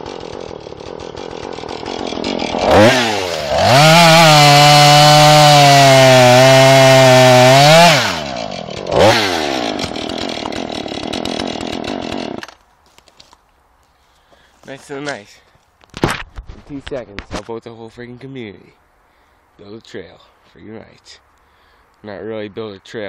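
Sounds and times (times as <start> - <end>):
chainsaw idling and revving: 0.0 - 12.6
chainsaw cutting wood: 0.0 - 12.7.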